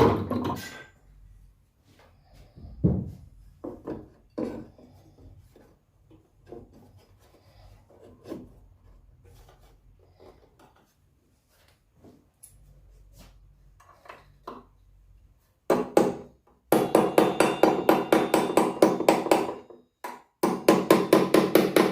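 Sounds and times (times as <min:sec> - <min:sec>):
handling knocks and scrapes: 0:01.8 - 0:15.7.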